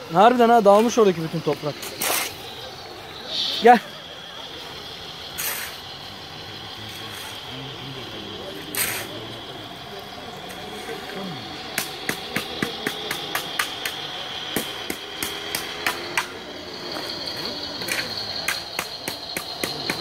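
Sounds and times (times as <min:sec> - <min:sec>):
electric motors whining: 0:00.0 - 0:20.0
sharp clicks and knocks: 0:11.7 - 0:20.0.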